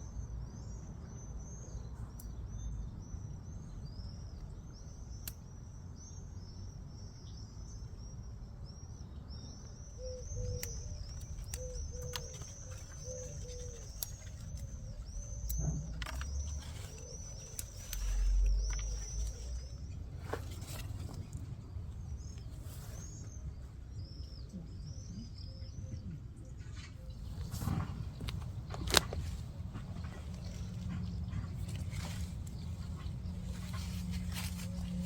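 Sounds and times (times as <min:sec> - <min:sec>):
lower bird paired calls: 0:08.9 - 0:20.9
bird high chirps: 0:09.6 - 0:19.9.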